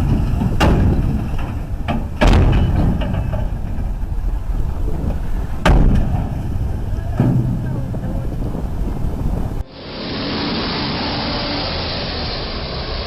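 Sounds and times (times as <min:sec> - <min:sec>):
loud impact bangs: 0:00.0 - 0:08.1
vehicle rumble: 0:00.0 - 0:13.0.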